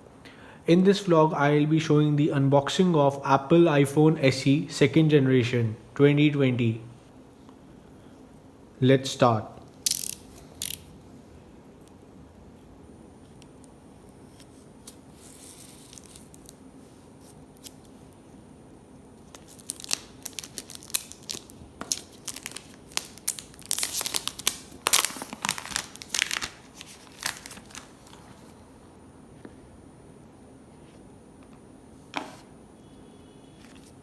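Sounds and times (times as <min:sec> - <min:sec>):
plastic wrap crinkling and tearing: 0:19.2 - 0:28.6.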